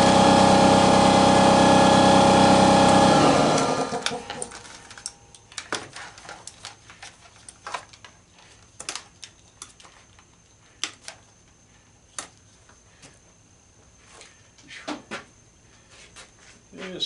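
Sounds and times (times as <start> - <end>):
tools and small parts clicking: 4.0 - 11.3.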